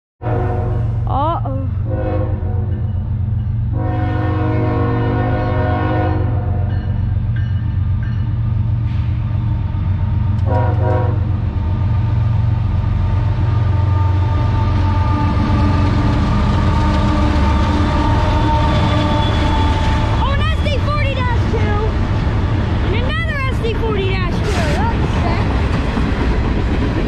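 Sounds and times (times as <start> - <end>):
train horn blasts: 0.2 - 1.1, 1.8 - 3.0, 3.7 - 6.9, 10.4 - 11.4, 13.3 - 21.3
diesel locomotives rumbling: 0.2 - 27.0.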